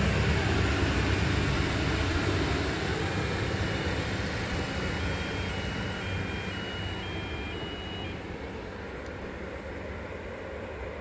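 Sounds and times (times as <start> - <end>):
train wheels rumbling on rails: 0.0 - 10.2
faint high tones: 4.7 - 8.6.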